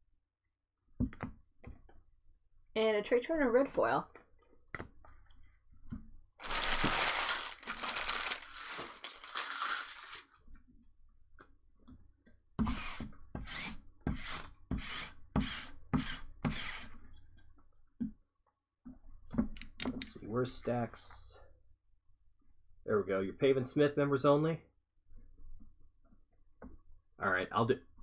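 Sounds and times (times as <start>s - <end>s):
foil crinkling: 6.4s - 10.4s
foil pack ripping open: 6.4s - 10.4s.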